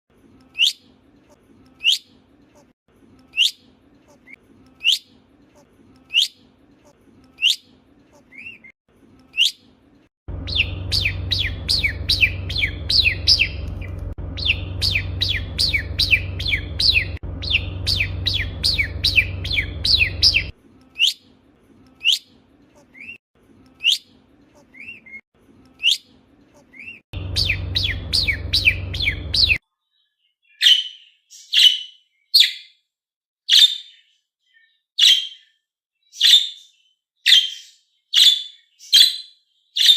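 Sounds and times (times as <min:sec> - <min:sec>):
steady low hum: 0:10.3 - 0:20.8, 0:27.2 - 0:29.6
harsh budgerigar chirps: 0:10.3 - 0:21.2, 0:25.8 - 0:29.6
budgerigars whistling: 0:10.4 - 0:21.2, 0:26.8 - 0:29.6
quick budgerigar chirping: 0:10.4 - 0:21.2, 0:26.8 - 0:29.6.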